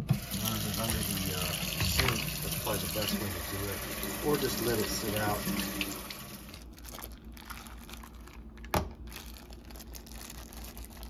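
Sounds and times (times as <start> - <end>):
plastic packaging crinkling: 6.5 - 11.0.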